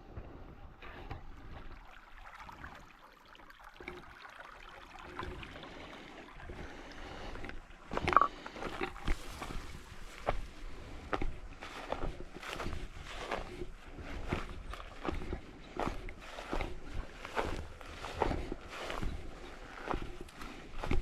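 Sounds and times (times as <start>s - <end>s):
faint moving water: 0.0s - 21.0s
footsteps crunching through leaves: 9.0s - 10.8s.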